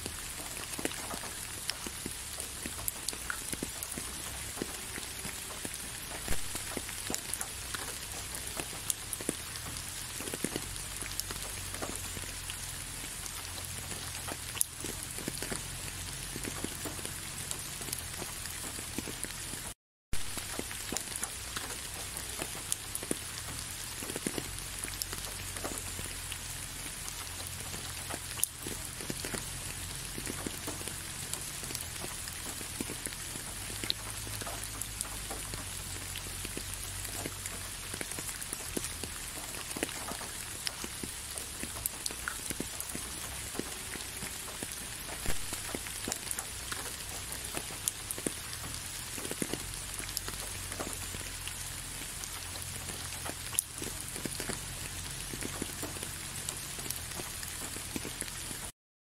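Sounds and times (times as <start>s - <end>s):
rain falling: 0.0s - 58.8s.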